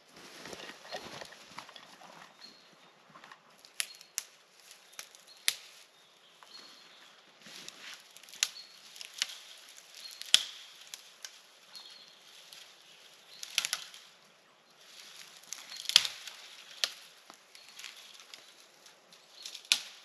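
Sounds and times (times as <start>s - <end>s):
dry wood cracking and knocking: 8.2s - 11.3s, 13.4s - 14.0s, 15.5s - 18.5s, 19.4s - 20.0s.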